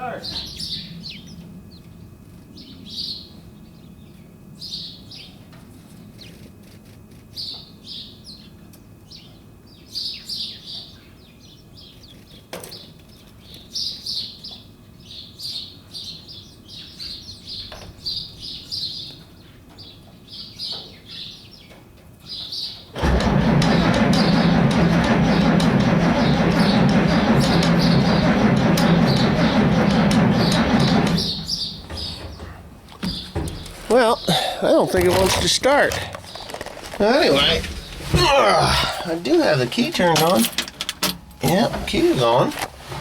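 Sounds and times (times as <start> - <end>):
small birds chirping: 0.0 - 5.4, 7.2 - 22.9, 30.3 - 38.0.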